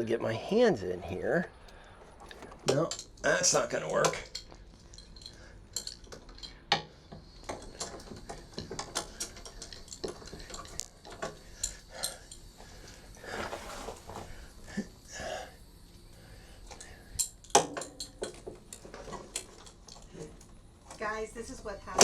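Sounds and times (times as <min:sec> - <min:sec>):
short rustle: 0:13.2 - 0:14.5.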